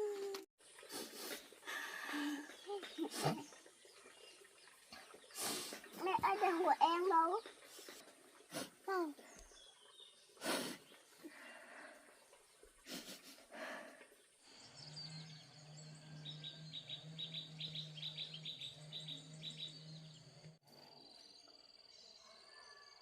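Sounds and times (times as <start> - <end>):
bird chirping: 14.5 - 22.8.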